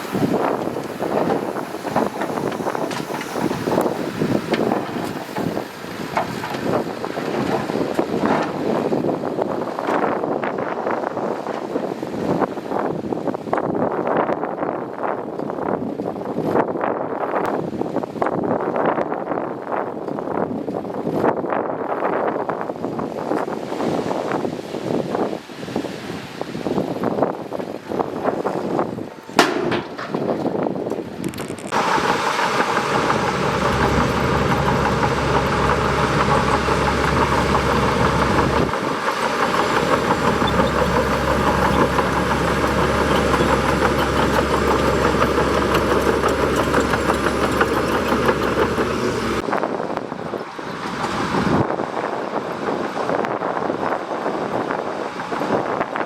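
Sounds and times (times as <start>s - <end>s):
bulldozer diesel engine running: 0.0s - 9.0s, 31.7s - 49.5s.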